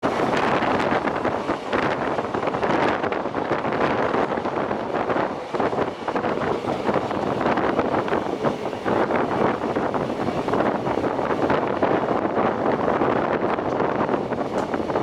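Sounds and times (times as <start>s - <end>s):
train rushing rumble: 0.0s - 15.0s
wind buffeting microphone: 0.0s - 15.0s.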